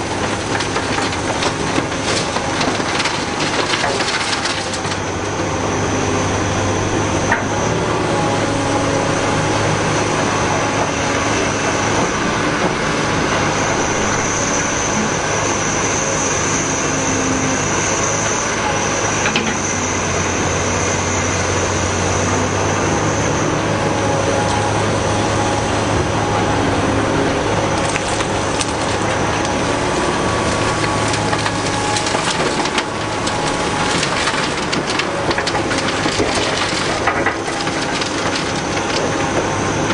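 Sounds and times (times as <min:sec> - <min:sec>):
diesel engine under load: 0:00.0 - 0:39.9
high hydraulic whine: 0:00.0 - 0:39.9
rock and dirt crunching: 0:00.0 - 0:39.9.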